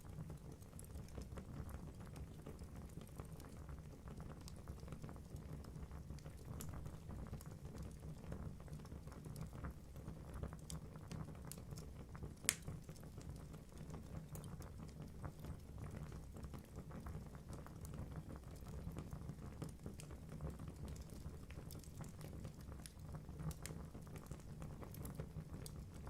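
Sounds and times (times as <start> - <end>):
fire rumbling: 5.3 - 9.8.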